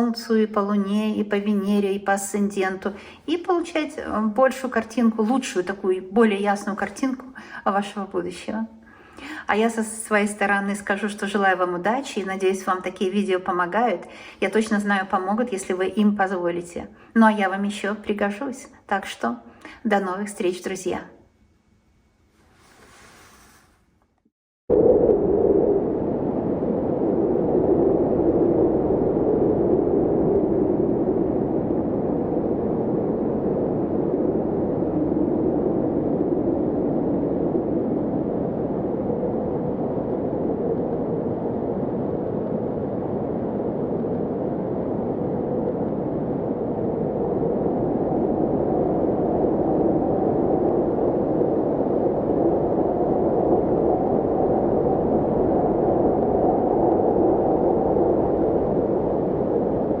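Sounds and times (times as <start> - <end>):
muffled rumbling drone: 24.7 - 60.0.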